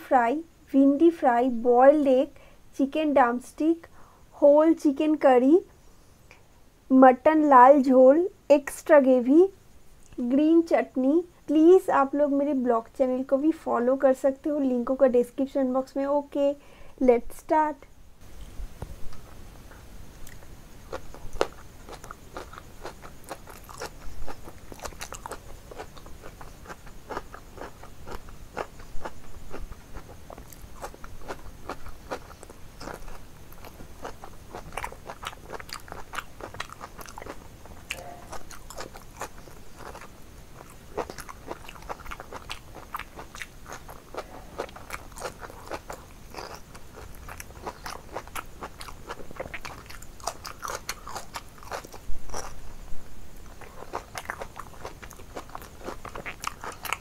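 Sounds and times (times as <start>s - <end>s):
chewing crunchy food: 20.2s - 52.6s, 53.4s - 57.0s.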